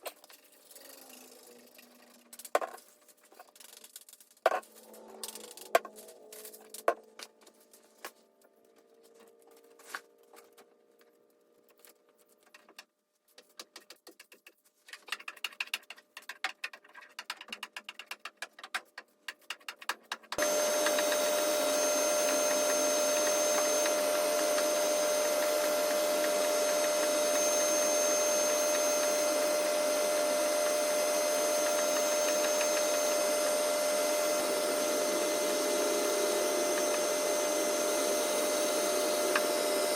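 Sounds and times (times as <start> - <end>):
small electric motor whine: 4.6 - 10.5, 20.4 - 39.9.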